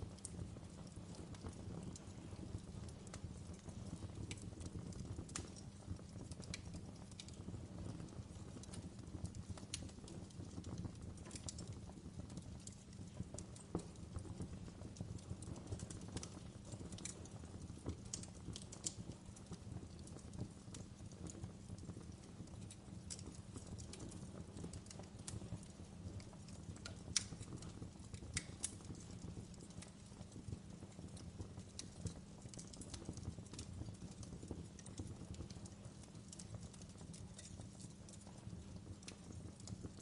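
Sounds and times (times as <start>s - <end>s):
low rumble of flames: 0.0s - 40.0s
pops and snaps of fire: 0.0s - 40.0s
wood fire crackling: 0.0s - 40.0s.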